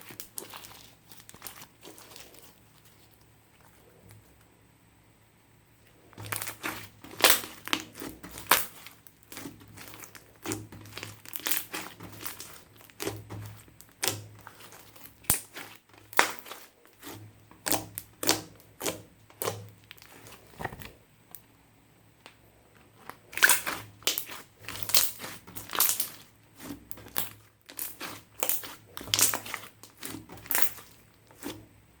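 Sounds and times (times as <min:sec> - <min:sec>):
slime sticky pops and crackles: 0:06.2 - 0:21.4, 0:23.1 - 0:31.5.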